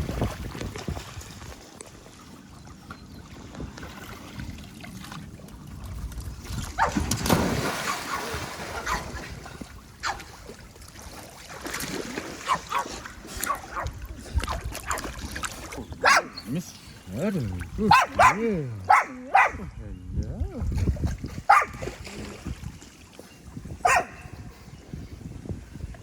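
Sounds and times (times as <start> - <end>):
water splashing: 0.0 - 19.7, 20.4 - 23.3
dog calls: 16.0 - 19.7, 21.5 - 21.8, 23.8 - 24.4.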